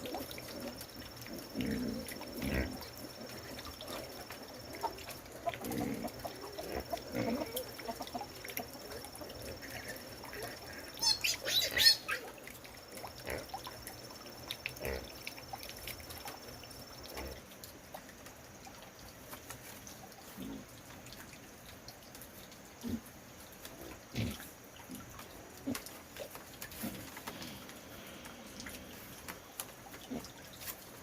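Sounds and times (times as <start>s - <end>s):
chicken squawking: 11.0s - 12.3s.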